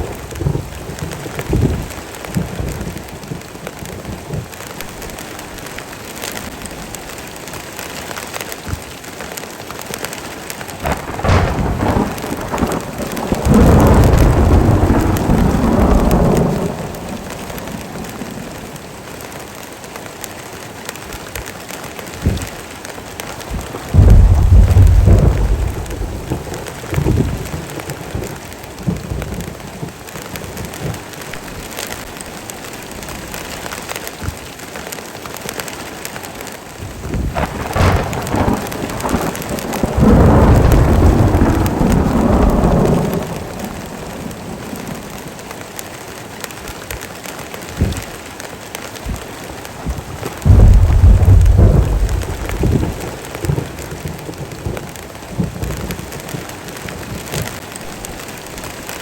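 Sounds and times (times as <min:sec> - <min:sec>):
thunder rolling: 0:00.0 - 0:05.6, 0:10.8 - 0:18.8, 0:23.4 - 0:29.9, 0:36.8 - 0:45.5, 0:49.8 - 0:59.0
heavy rain: 0:00.0 - 0:59.0
crackling: 0:09.8 - 0:18.7, 0:49.8 - 0:54.8.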